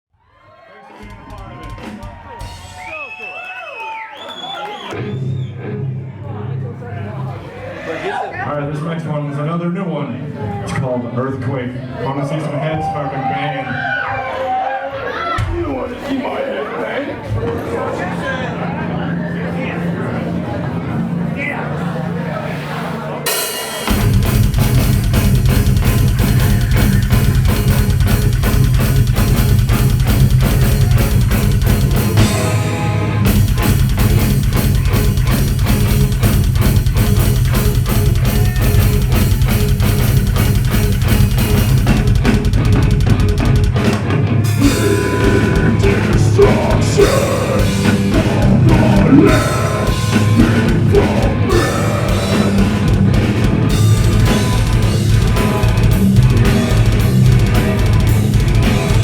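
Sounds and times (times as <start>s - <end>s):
fast drumming: 1.0s - 3.2s, 23.3s - 59.0s
distorted guitars: 23.2s - 59.0s
bass guitar: 23.3s - 59.0s.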